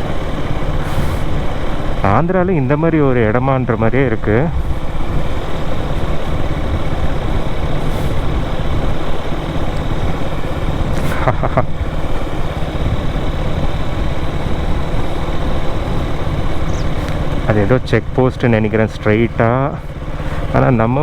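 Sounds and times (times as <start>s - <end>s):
motorcycle engine: 0.0s - 21.0s
wind noise on microphone: 3.8s - 17.6s.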